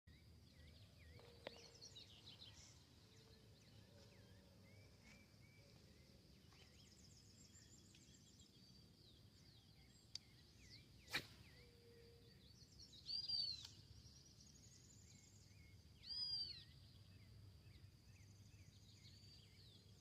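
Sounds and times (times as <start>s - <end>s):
bird chirps and calls: 9.4s - 17.1s.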